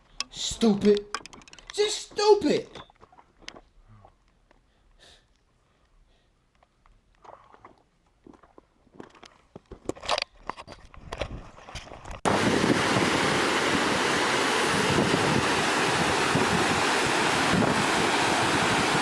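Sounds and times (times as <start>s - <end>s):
loud steady rushing noise: 12.3s - 19.0s.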